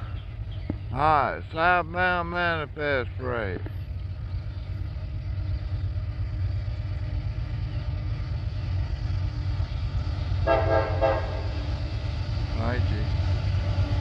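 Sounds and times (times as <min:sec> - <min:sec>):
freight train rumbling past: 0:00.0 - 0:14.0
locomotive horn toot: 0:10.4 - 0:11.7.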